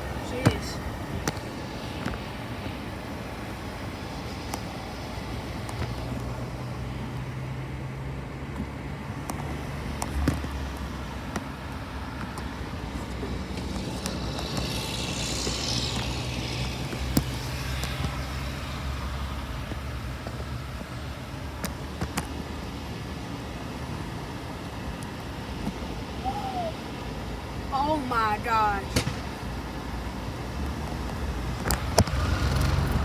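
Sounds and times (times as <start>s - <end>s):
hissing rush: 0.0s - 7.4s
car engine humming: 0.0s - 21.8s, 29.8s - 33.0s
road and traffic noise: 0.0s - 33.0s.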